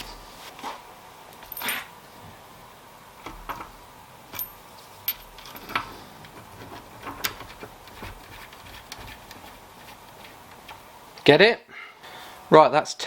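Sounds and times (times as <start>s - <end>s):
hand tools clicking and knocking: 4.3s - 9.5s.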